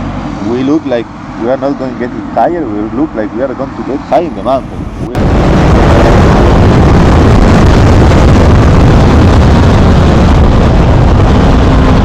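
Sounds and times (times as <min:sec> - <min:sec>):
wind buffeting microphone: 0:04.2 - 0:12.0
motorcycle engine running: 0:04.3 - 0:12.0.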